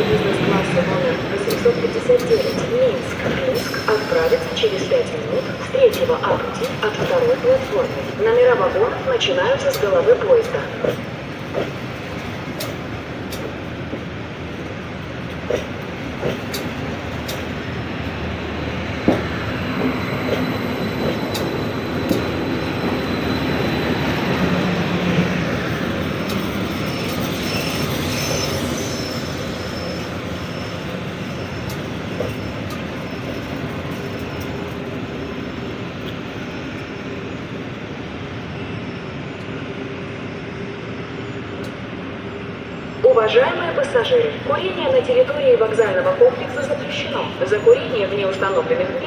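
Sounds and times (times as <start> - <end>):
train wheel-on-rail noise: 0.0 - 49.0
faint wheel squeal: 25.4 - 34.9.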